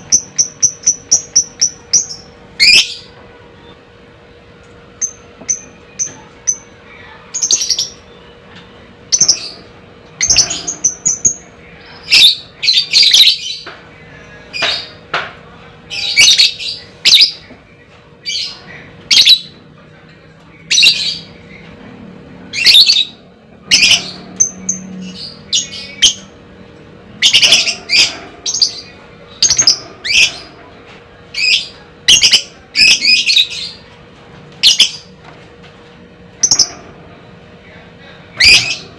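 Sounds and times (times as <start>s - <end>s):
lovebird squawking chirps: 27.2s - 30.5s.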